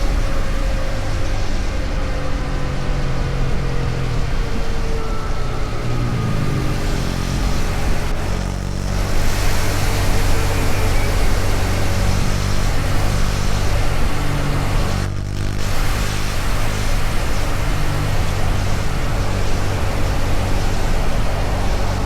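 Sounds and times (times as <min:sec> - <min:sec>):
road noise: 0:00.0 - 0:22.0
motorcycle engine running: 0:06.1 - 0:22.0.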